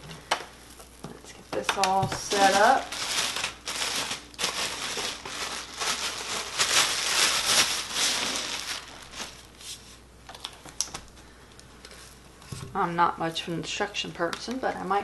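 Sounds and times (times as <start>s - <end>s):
packaging crinkling: 0.1s - 11.2s.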